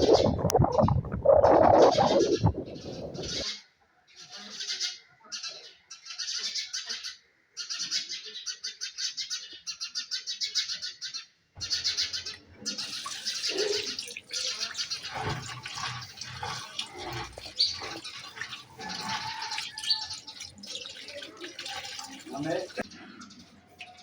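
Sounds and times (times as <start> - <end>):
birds chirping: 0.0 - 3.6, 4.6 - 24.0.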